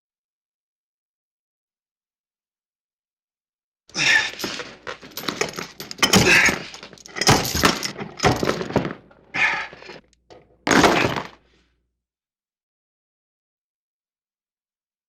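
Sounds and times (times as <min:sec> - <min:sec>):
crashes and thuds: 0:04.2 - 0:10.0, 0:10.7 - 0:11.4.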